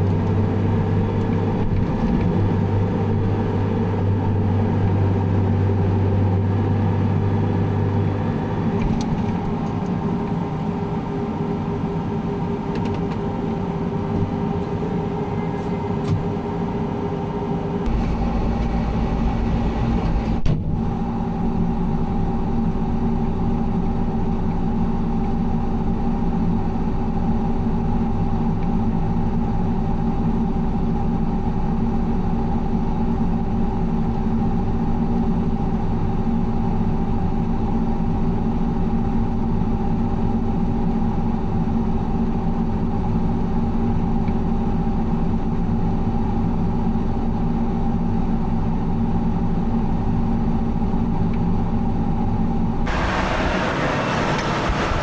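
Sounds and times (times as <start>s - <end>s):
combine harvester drone: 0.0s - 23.8s, 52.9s - 55.0s.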